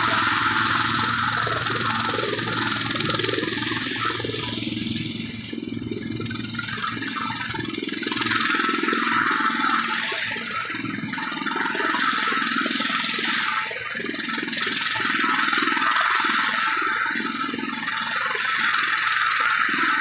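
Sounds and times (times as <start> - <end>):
helicopter rotor drone: 0.0 - 20.0.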